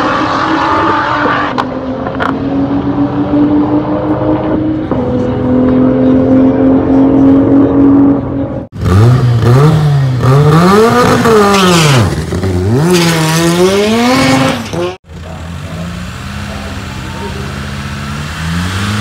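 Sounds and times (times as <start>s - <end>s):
car engine revving hard: 8.8s - 19.0s
engine at steady high note: 15.0s - 19.0s.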